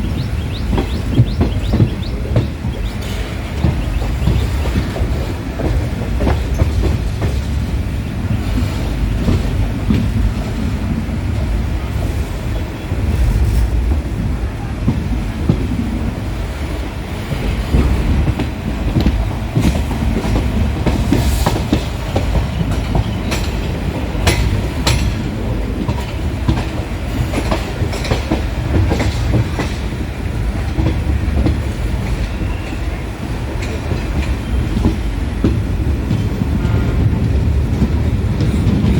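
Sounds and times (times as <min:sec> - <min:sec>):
wheels clacking over rail joints: 0:00.0 - 0:14.2, 0:14.8 - 0:38.9
train rumbling on rails: 0:00.0 - 0:38.9.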